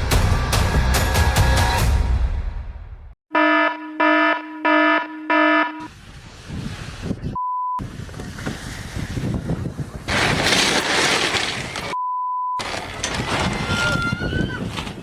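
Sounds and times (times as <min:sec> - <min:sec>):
alarm buzzing blasts: 0:03.3 - 0:05.9.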